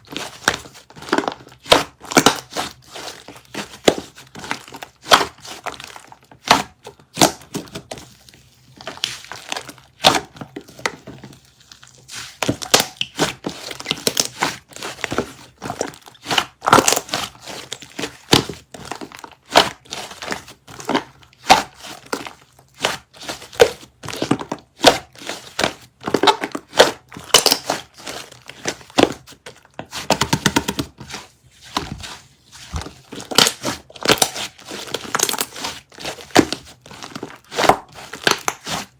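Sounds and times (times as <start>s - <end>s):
slime squished by hand: 11.4s - 38.9s.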